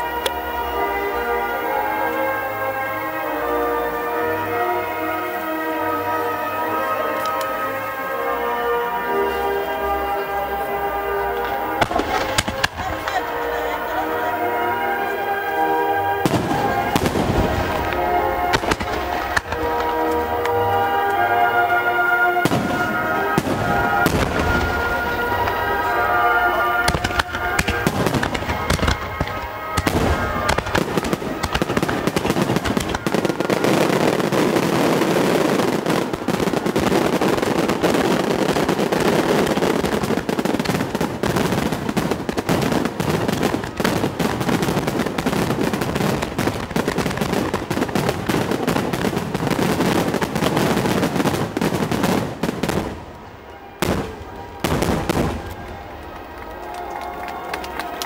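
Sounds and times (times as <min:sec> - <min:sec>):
firework crackling: 0:00.0 - 0:58.0
music: 0:00.0 - 0:58.0
firework shells bursting: 0:11.3 - 0:13.9, 0:14.5 - 0:58.0.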